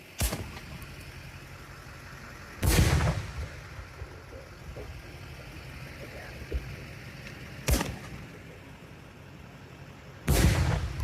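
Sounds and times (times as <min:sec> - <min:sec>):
firework boom: 0:02.6 - 0:04.1, 0:10.3 - 0:11.0.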